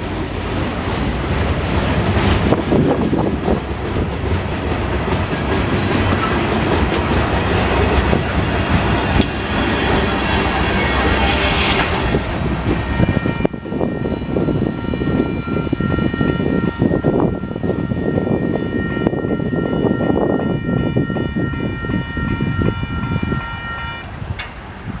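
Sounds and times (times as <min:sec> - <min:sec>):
clanks and knocks of rail cars: 0:00.0 - 0:15.3, 0:24.2 - 0:25.0
freight cars rumbling on track: 0:00.0 - 0:20.0.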